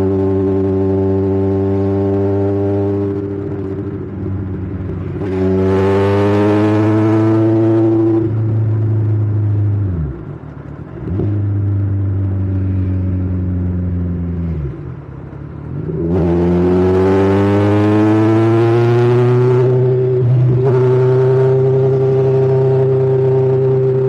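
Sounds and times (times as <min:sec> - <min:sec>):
motorcycle engine revving: 0:00.0 - 0:10.1, 0:15.8 - 0:24.0.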